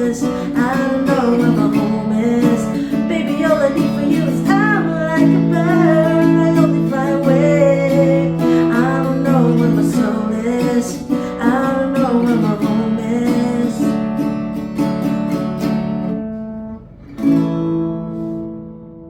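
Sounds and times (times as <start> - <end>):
person singing: 0.0 - 14.5
acoustic guitar strumming: 0.0 - 19.0.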